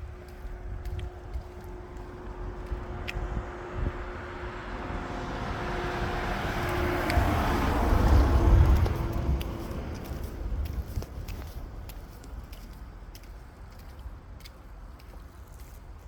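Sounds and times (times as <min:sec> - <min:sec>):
vehicle passing by: 0:00.0 - 0:11.6.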